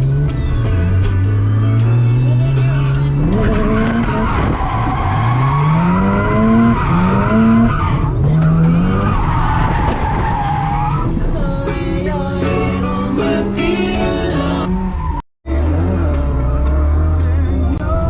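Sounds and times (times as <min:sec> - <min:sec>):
car engine revving hard: 0:00.0 - 0:09.3
tires squealing and skidding: 0:00.0 - 0:11.3, 0:12.8 - 0:17.4.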